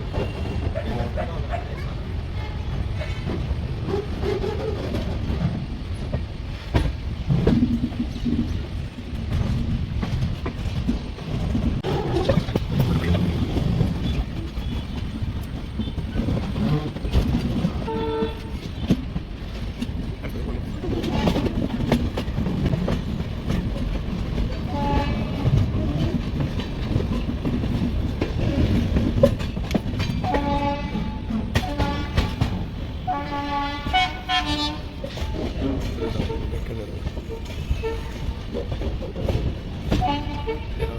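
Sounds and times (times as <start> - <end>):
train rumbling on track: 0.0 - 40.9
train horn blasts: 17.8 - 18.9, 24.7 - 25.6, 30.2 - 36.6, 37.3 - 38.4, 39.9 - 40.9.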